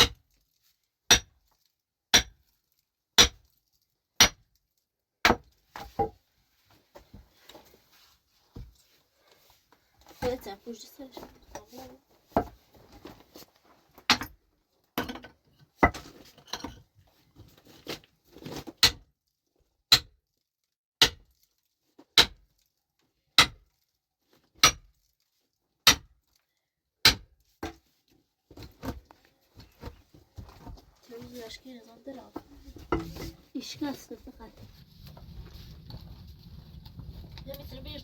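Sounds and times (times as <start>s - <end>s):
metal hand tool striking rock: 0.0s - 0.2s, 1.1s - 1.4s, 2.1s - 2.4s, 3.2s - 3.5s, 4.2s - 4.4s, 18.8s - 19.0s, 19.9s - 20.2s, 21.0s - 21.2s, 22.2s - 22.4s, 23.4s - 23.6s, 24.6s - 24.8s, 25.9s - 26.1s, 27.0s - 27.8s.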